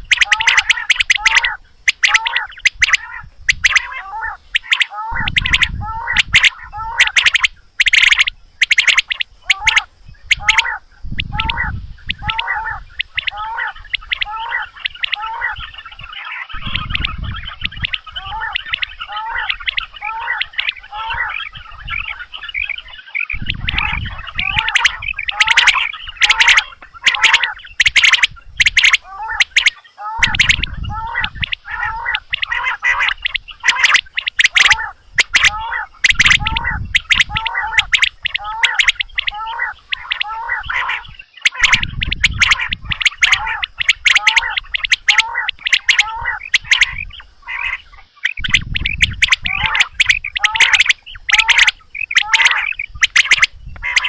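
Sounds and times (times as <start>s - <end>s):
quail chirping calls: 0.0s - 54.0s
low rumble: 16.6s - 17.9s.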